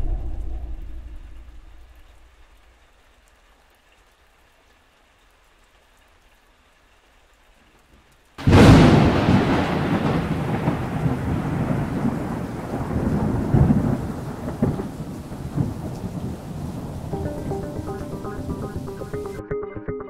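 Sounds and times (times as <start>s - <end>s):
loud rumbling thunderclap: 0.0s - 2.4s, 8.4s - 17.2s
faint rain: 0.0s - 19.4s.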